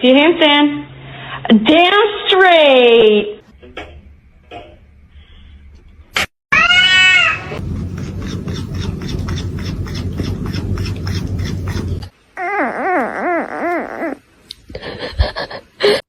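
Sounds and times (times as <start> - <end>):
cat meowing: 6.5 - 7.6
cat yowling: 6.5 - 7.6, 8.2 - 14.2
rough pulsing noise: 7.6 - 12.1.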